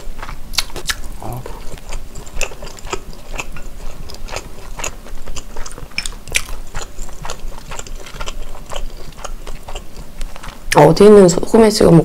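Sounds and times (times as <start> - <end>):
wet mouth clicks and smacks: 0.5 - 1.1, 5.6 - 6.6.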